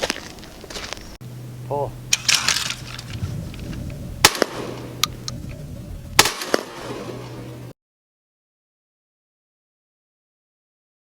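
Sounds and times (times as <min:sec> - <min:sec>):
steady low hum: 0:00.0 - 0:07.7
shotgun reports: 0:04.2 - 0:05.1.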